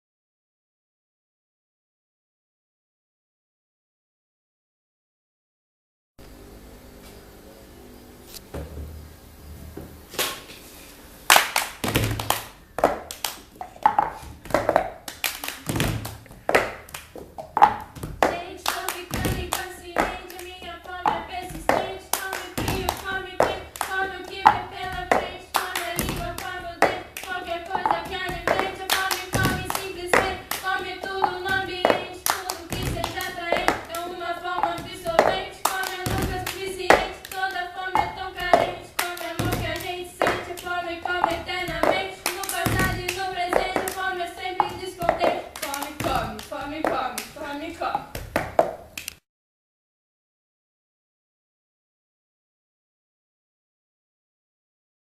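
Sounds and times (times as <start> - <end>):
hand claps: 11.3 - 47.4, 48.2 - 49.2
person singing: 18.2 - 47.0.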